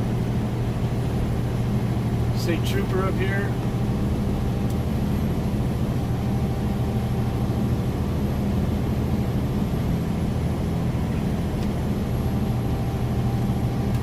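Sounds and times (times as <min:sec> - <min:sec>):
diesel truck engine humming: 0:00.0 - 0:14.0.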